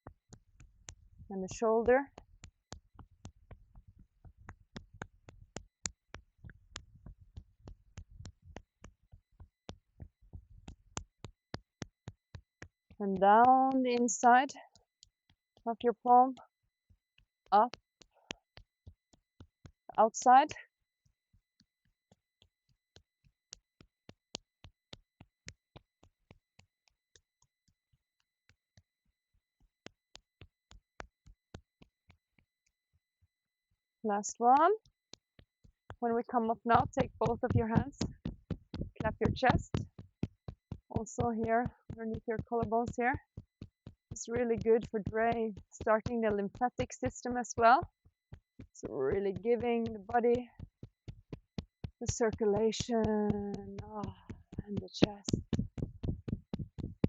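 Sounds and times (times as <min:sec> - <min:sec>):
palm patting on arm: 0:01.9 - 0:14.1, 0:34.9 - 0:57.0.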